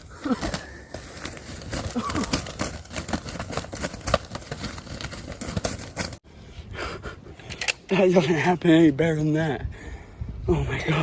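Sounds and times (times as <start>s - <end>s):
dry leaves rustling and crackling: 0.0s - 6.2s.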